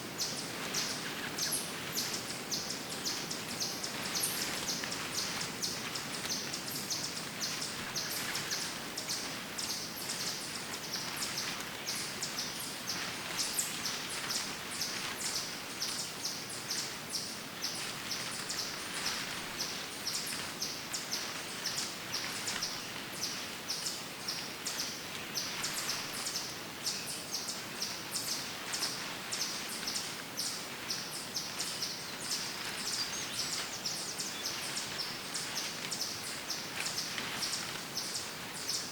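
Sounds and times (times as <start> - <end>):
steady background hiss: 0.0 - 38.9
birds chirping: 0.2 - 38.9.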